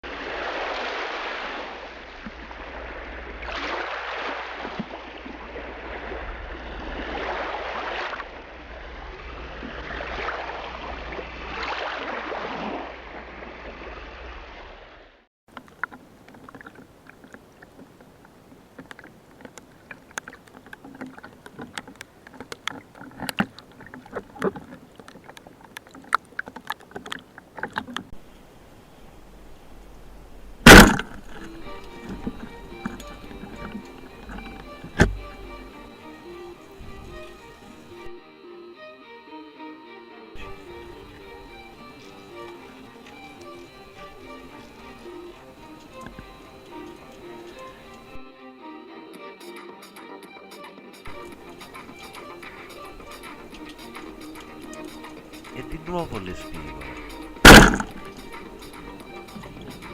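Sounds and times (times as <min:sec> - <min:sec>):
sea water washing in surges: 0:00.0 - 0:38.2, 0:40.4 - 0:48.2, 0:51.1 - 0:59.9
underwater crackling clicks: 0:15.5 - 0:28.2, 0:29.2 - 0:38.2, 0:40.4 - 0:48.2, 0:51.1 - 0:59.9.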